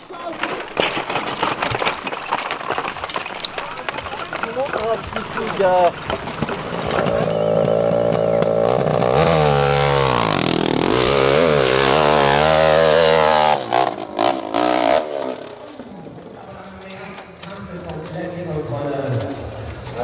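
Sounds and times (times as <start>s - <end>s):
sharp clattering knocks: 0.0s - 14.6s
dirt bike engine revving: 6.5s - 15.9s.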